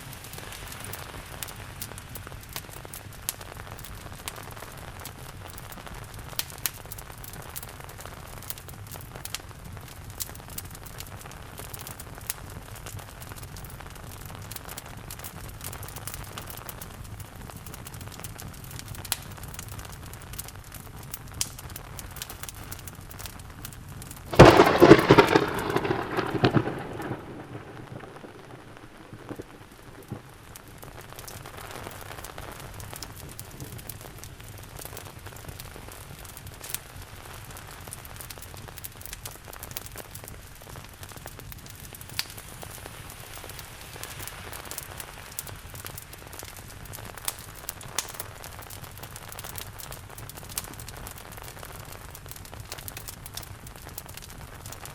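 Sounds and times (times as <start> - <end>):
fireplace crackling: 0.0 - 54.9
steady rain: 0.0 - 54.9
loud thunderclap: 24.3 - 30.2.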